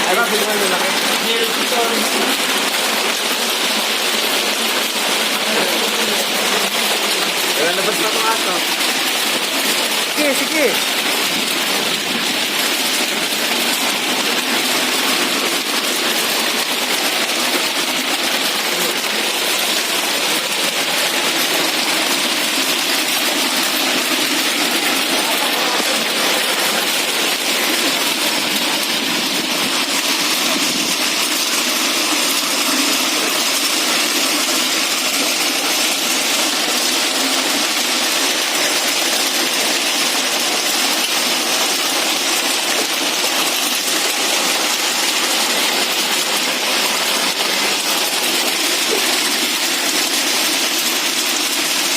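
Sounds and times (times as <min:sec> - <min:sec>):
hail and rain pelting: 0:00.0 - 0:51.9.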